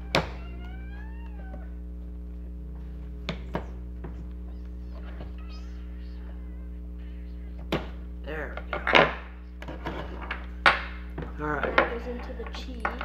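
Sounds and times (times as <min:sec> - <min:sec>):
cat meowing: 0:00.0 - 0:01.8, 0:04.5 - 0:07.6
steady low hum: 0:00.0 - 0:13.0.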